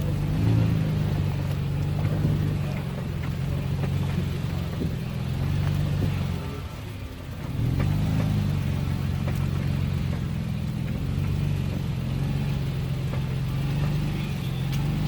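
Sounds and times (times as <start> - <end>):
pickup truck engine running: 0.0 - 15.0.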